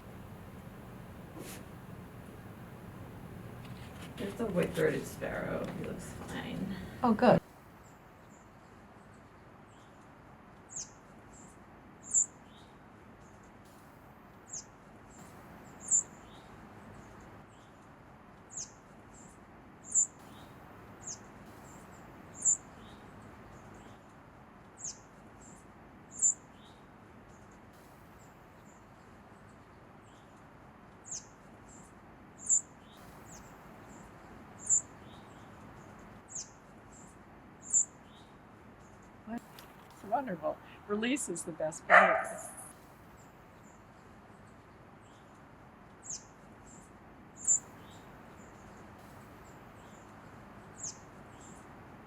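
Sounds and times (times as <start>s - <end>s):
songbird chirping: 0.0s - 7.4s, 10.7s - 11.4s, 12.0s - 12.7s, 15.5s - 17.7s, 19.8s - 24.1s, 24.8s - 26.8s, 31.0s - 51.8s.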